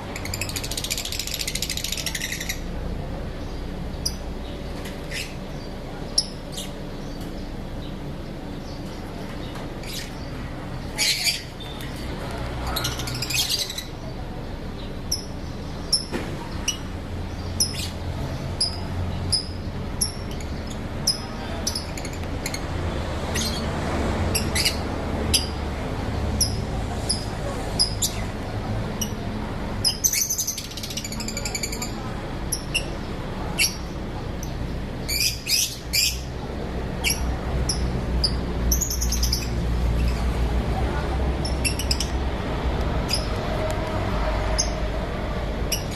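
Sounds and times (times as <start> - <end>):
lovebirds chirping: 0.0 - 22.7, 29.8 - 36.3, 37.0 - 40.5, 41.3 - 42.3.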